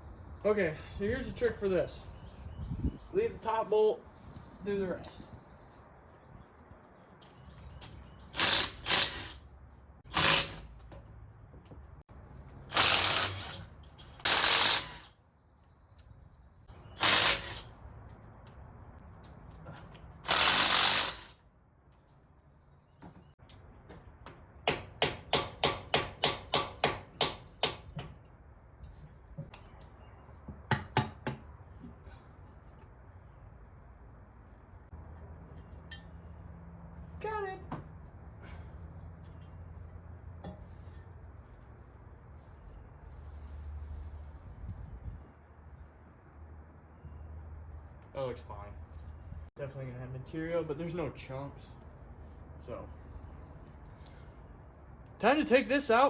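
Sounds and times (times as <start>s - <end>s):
impact wrench bursts: 8.3s - 9.4s, 10.1s - 10.8s, 12.7s - 15.2s, 17.0s - 17.8s, 20.2s - 21.4s.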